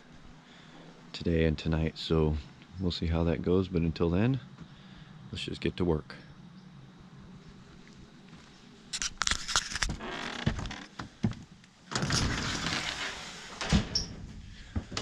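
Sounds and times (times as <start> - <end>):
door scraping: 11.9 - 14.4.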